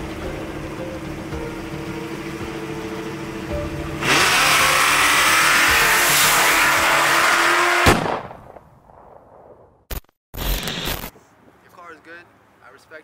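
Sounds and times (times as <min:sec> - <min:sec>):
car engines accelerating hard: 0:00.0 - 0:07.9
sharp crack: 0:06.1 - 0:11.1.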